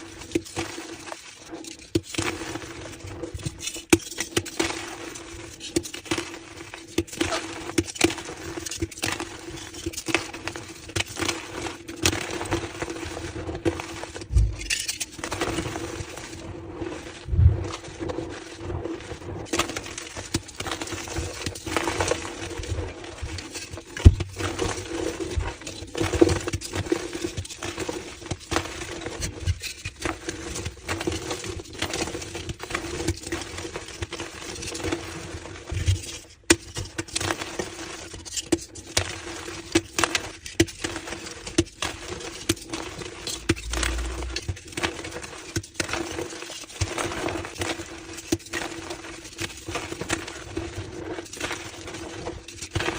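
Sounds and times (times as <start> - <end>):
chalk blocks crushed and crumbling: 0.2 - 13.1, 35.8 - 52.9.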